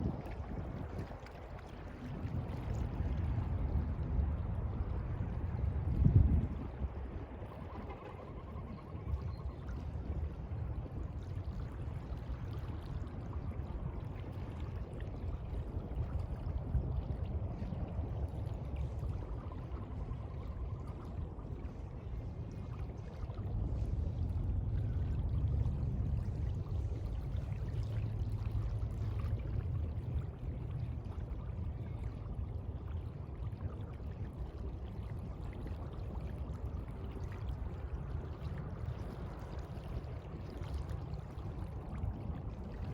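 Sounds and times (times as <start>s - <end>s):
sea water washing and sloshing: 10.4s - 42.9s.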